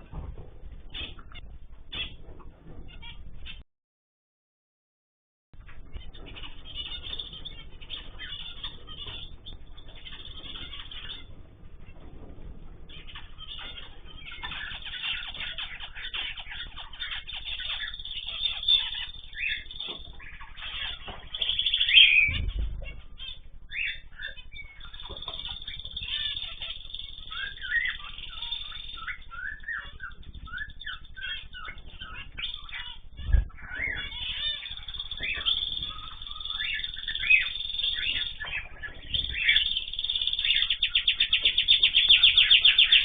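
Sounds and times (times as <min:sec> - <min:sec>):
birds chirping: 0:00.0 - 0:03.6, 0:05.6 - 0:43.0
wings fluttering: 0:05.7 - 0:43.0.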